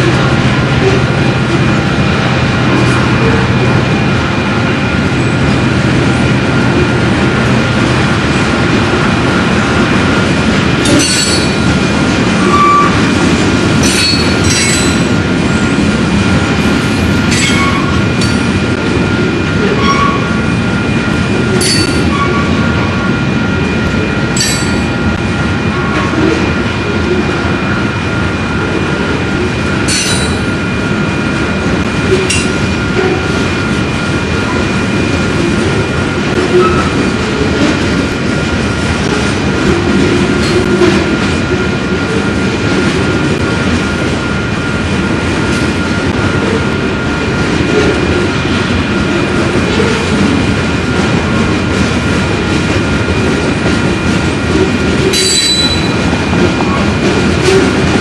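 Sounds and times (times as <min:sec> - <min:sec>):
train rumbling on track: 0:00.0 - 0:58.0
short wheel squeals: 0:55.1 - 0:56.0.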